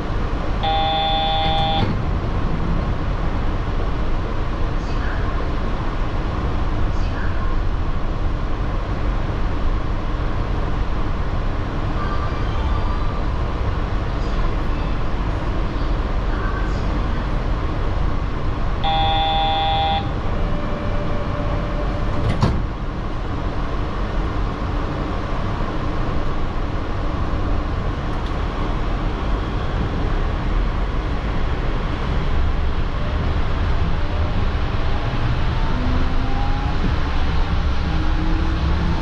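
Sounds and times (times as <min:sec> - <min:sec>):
train running hum: 0:00.0 - 0:39.0
short tone signal: 0:00.6 - 0:01.9, 0:18.8 - 0:22.2.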